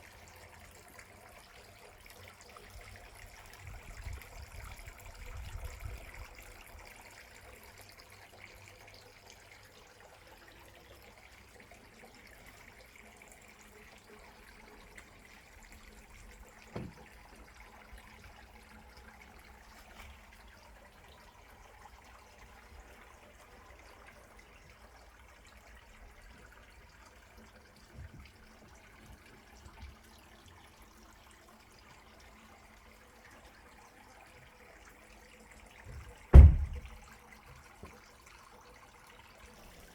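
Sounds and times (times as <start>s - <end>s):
faint trickling water: 0.0s - 39.9s
soft thumps: 16.7s - 17.1s, 35.9s - 37.0s
sharp knock: 36.3s - 36.8s.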